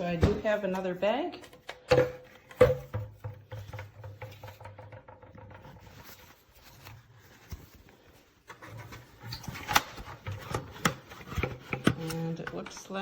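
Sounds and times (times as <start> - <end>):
scrapes and plastic clicks: 3.6 - 13.0.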